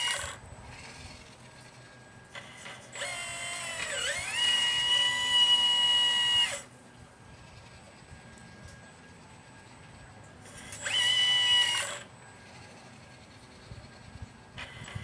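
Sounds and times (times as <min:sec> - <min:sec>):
electric motor whining: 0:00.0 - 0:06.7, 0:10.5 - 0:15.0.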